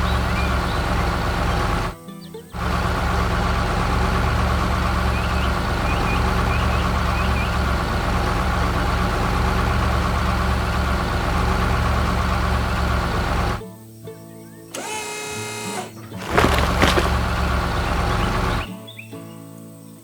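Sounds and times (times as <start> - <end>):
truck engine idling: 0.0 - 1.9, 2.6 - 13.6, 16.2 - 18.7.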